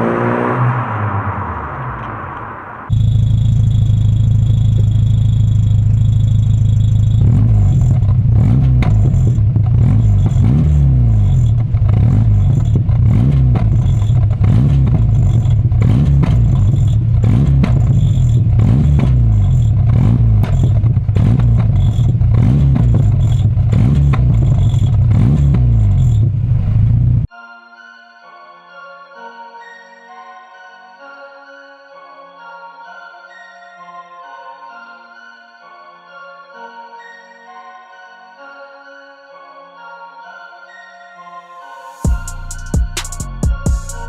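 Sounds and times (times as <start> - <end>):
car engine revving through exhaust: 0.0 - 27.3.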